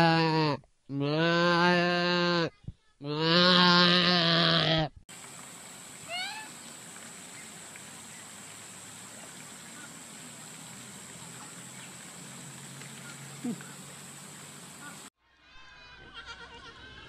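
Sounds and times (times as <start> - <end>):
outdoor background hiss: 5.1 - 15.1.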